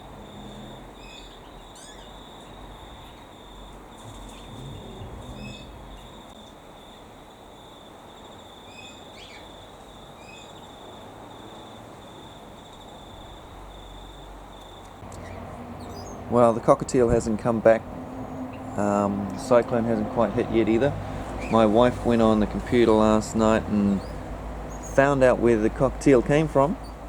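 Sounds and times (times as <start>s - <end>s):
low background rumble: 0.0s - 7.0s
insects trilling: 0.0s - 27.0s
bird chirps and falling calls: 0.6s - 3.4s, 4.0s - 6.4s, 8.7s - 10.7s, 14.8s - 16.3s, 21.2s - 25.4s.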